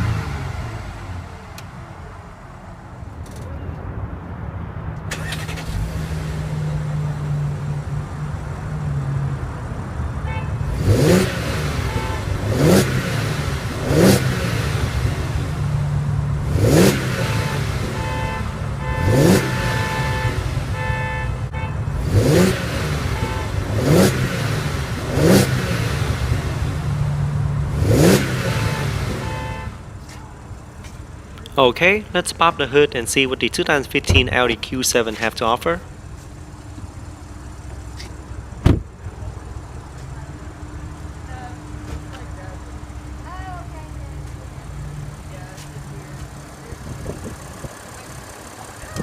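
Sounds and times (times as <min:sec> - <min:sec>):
engine revving: 0:00.0 - 0:01.8, 0:05.1 - 0:09.6, 0:10.6 - 0:21.1, 0:21.8 - 0:29.8
car engine idling: 0:00.0 - 0:49.0.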